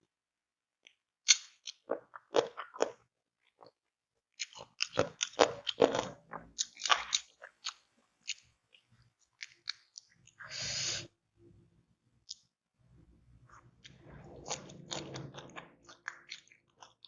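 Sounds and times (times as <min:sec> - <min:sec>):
crunchy bites and chewing: 0:04.4 - 0:08.4.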